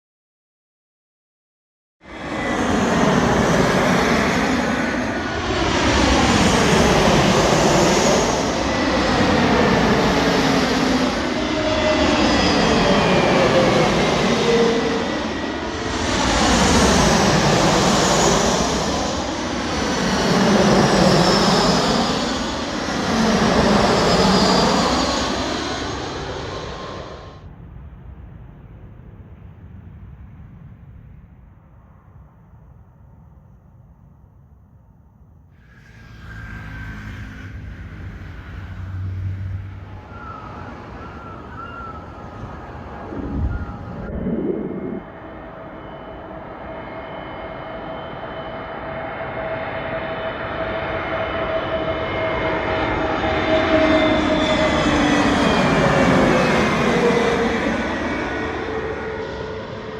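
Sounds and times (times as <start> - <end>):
jet engines rushing: 2.1 - 27.5, 35.6 - 59.9
faint high whine: 35.6 - 54.2.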